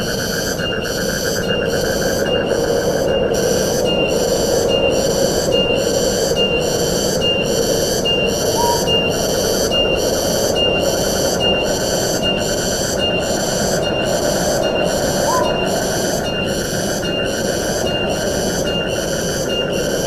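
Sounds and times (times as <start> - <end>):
wind through forest: 0.0 - 20.0
high-pitched pulsing call: 7.2 - 18.1.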